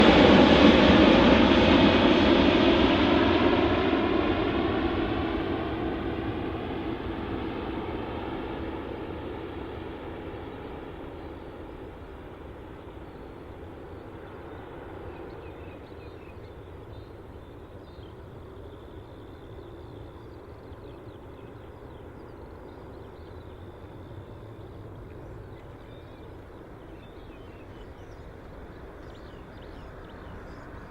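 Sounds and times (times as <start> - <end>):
jet engines rumbling: 0.0 - 30.9
faint bird chirps: 12.8 - 30.9.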